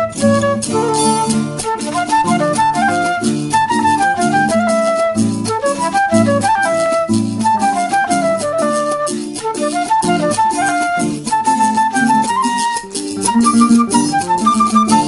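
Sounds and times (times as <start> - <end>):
strummed guitars with high melody: 0.0 - 15.0.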